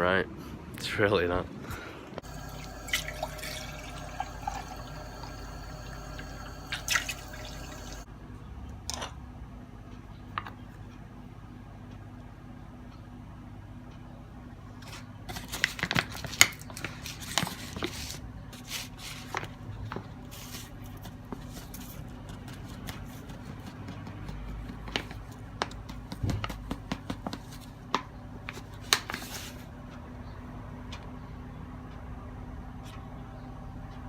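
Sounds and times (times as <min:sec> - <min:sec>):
steady low hum: 0:02.2 - 0:08.1.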